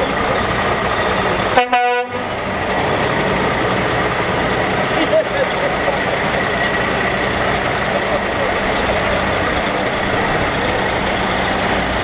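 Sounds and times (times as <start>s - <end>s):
truck engines running: 0.0s - 12.0s
truck horn blast: 1.5s - 2.3s.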